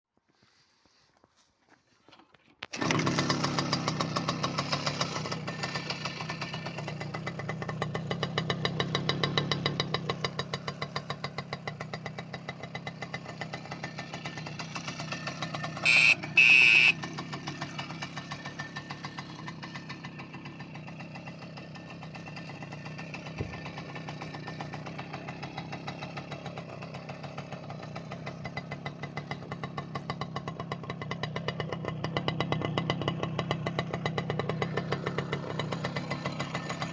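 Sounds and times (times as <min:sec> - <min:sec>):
moped engine idling: 0:02.7 - 0:36.9
short high beeps: 0:15.8 - 0:17.0.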